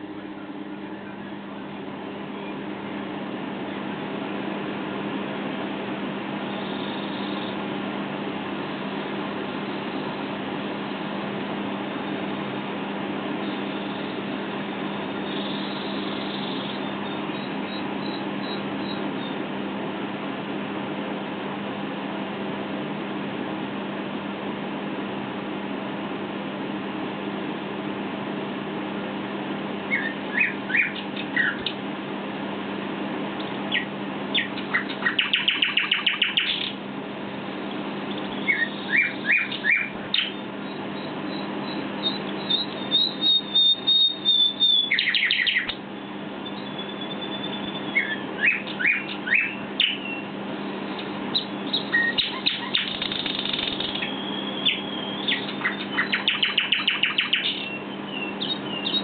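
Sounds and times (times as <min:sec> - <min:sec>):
steady low hum: 0:00.0 - 0:59.0
nightingale singing: 0:06.4 - 0:07.6, 0:13.4 - 0:19.4, 0:29.9 - 0:31.7, 0:33.7 - 0:36.8, 0:38.0 - 0:59.0.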